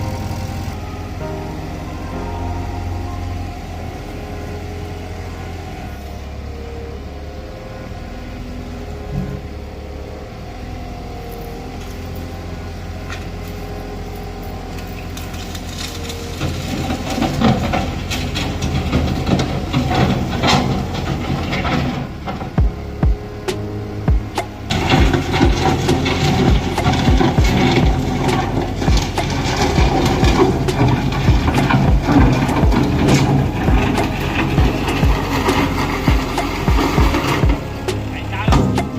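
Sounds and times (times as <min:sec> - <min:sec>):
diesel engine running: 0:00.0 - 0:38.9
loud clanking and rattling: 0:14.9 - 0:38.9.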